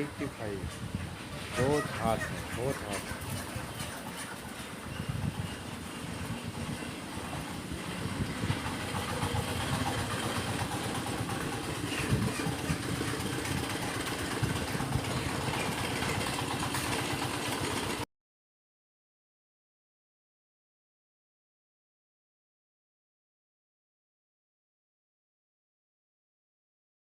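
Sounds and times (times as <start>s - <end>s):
engine low rumble: 0.0s - 18.0s.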